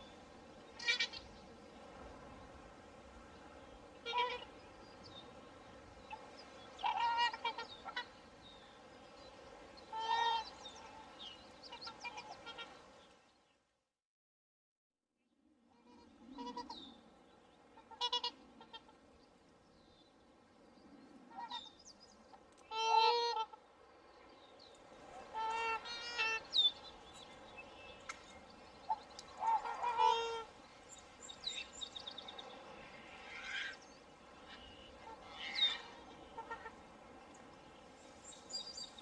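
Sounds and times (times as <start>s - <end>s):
swans honking: 0.7s - 1.3s, 3.9s - 4.8s, 6.1s - 8.4s, 9.8s - 12.8s, 15.9s - 16.8s, 17.7s - 19.0s, 22.7s - 23.6s, 25.1s - 27.0s, 28.8s - 30.6s, 33.0s - 37.1s.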